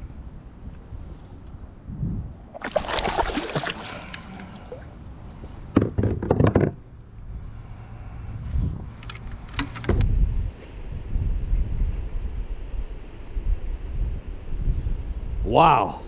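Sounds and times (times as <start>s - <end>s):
water splashing around kayak: 2.5s - 5.5s.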